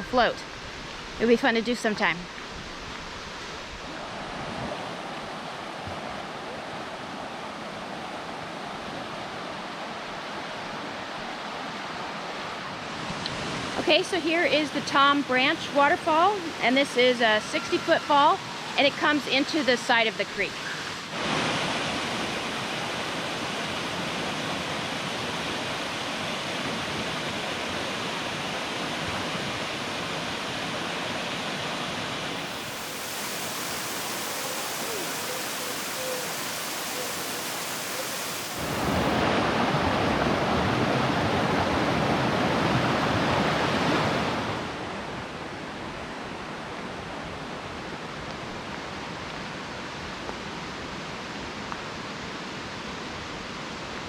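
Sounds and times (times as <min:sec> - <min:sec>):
waterfall rushing: 0:32.2 - 0:39.5.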